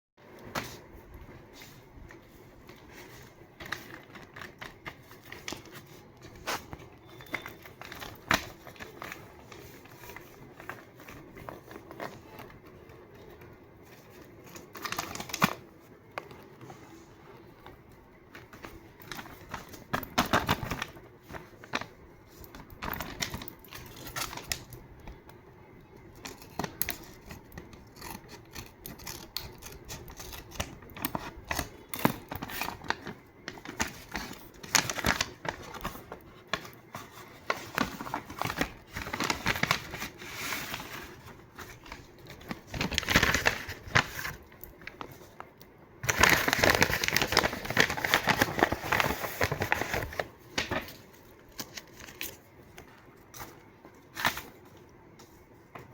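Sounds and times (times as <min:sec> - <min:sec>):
paper crinkling: 0:00.4 - 0:25.4, 0:26.0 - 0:55.4
scissors snipping paper: 0:26.1 - 0:32.9.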